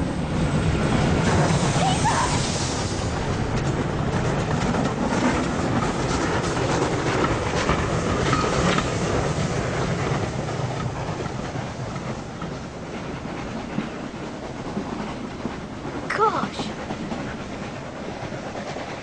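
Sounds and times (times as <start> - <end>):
train wheels clattering over rail joints: 2.4 - 16.1.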